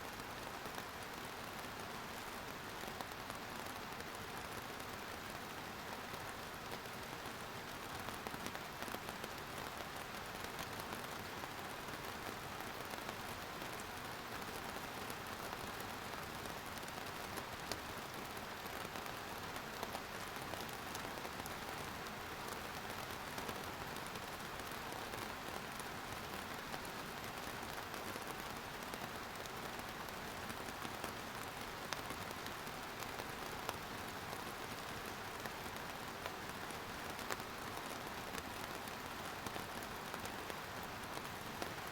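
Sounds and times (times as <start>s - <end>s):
rain hitting a surface: 0.0s - 41.9s
individual raindrop ticks: 15.5s - 41.9s.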